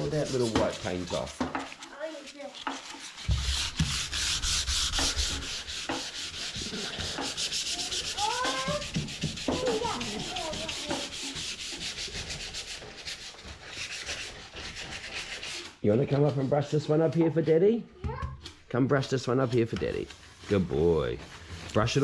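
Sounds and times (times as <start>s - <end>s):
sandpaper rubbing on wood: 0.0s - 17.1s.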